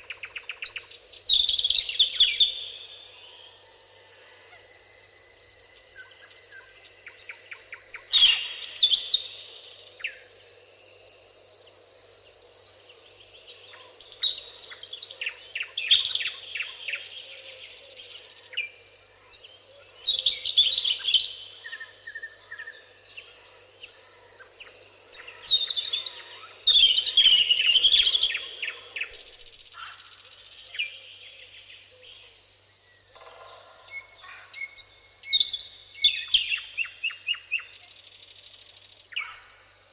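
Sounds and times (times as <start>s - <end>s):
birds chirping and trilling: 0.0s - 10.7s, 11.8s - 39.6s.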